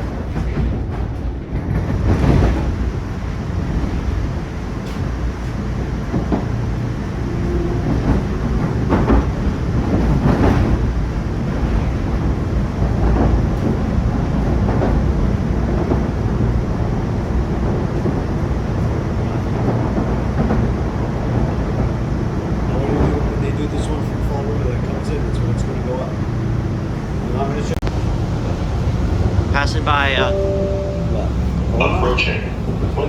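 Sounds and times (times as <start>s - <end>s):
subway car rumble: 0.0s - 33.0s.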